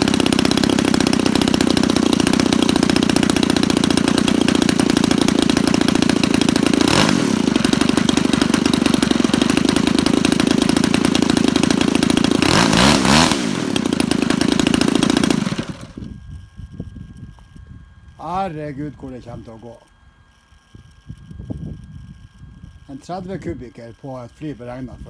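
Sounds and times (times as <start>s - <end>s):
engine revving: 0.0s - 16.0s
model aeroplane engine idling: 0.0s - 25.0s.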